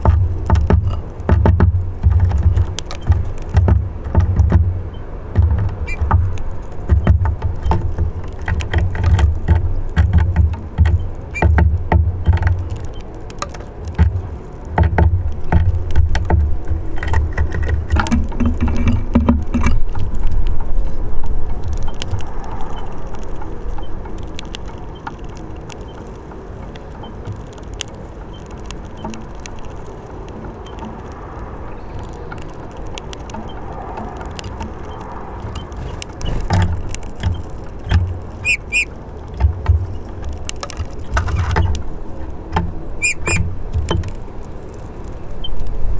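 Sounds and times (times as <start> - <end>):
wind buffeting microphone: 0.0 - 27.4, 28.0 - 45.9
high bird calls: 38.4 - 38.9, 42.8 - 43.4.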